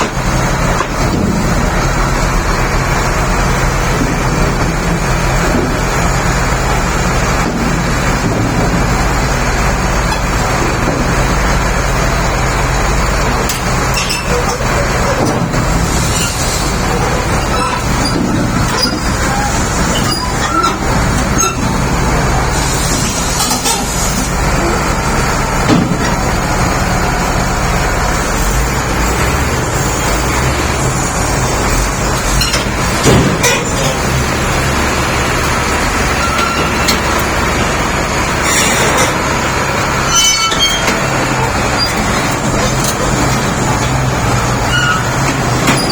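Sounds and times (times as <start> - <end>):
bulldozer diesel engine running: 0.0 - 45.9
short high squeaks and clicks: 40.1 - 41.0.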